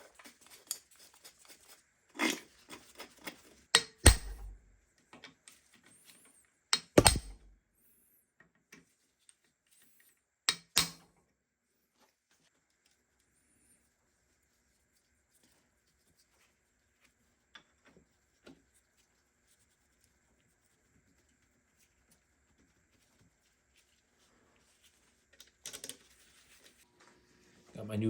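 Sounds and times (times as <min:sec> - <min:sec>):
faint clicks of parts handled: 0:24.6 - 0:27.1.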